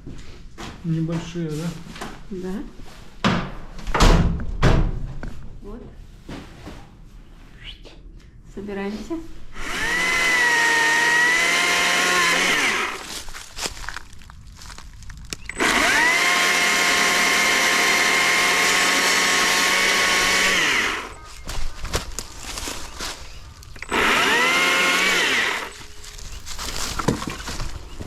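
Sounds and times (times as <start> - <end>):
chainsaw cutting wood: 9.6 - 13.3, 15.5 - 22.8, 23.7 - 27.7.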